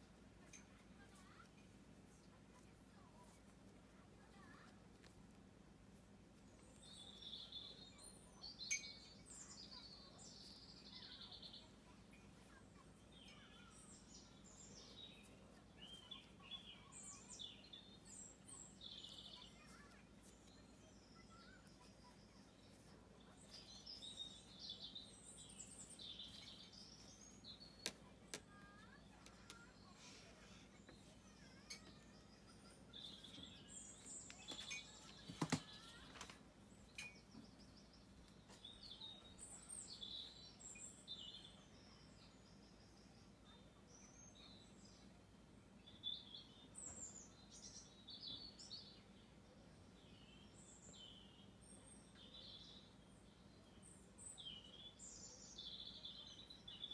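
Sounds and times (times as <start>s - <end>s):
faint birdsong with trill: 0.0s - 56.9s.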